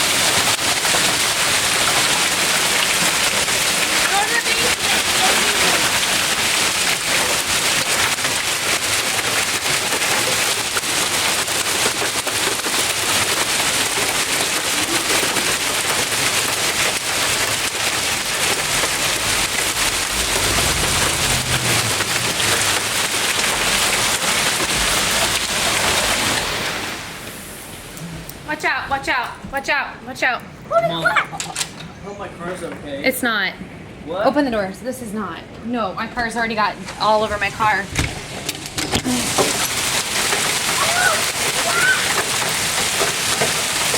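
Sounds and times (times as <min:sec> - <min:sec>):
hail clattering on surfaces: 0:00.0 - 0:27.0, 0:37.4 - 0:43.9.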